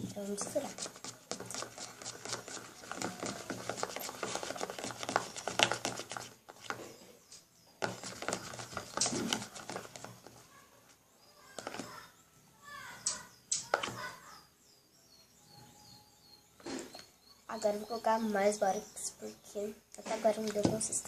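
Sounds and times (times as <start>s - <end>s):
spoon scraping wet slime: 0.1s - 7.0s, 7.9s - 10.1s.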